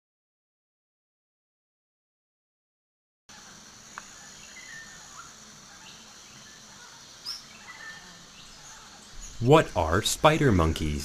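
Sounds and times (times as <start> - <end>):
bird chirps: 3.3 - 11.0
insect drone: 3.3 - 11.0.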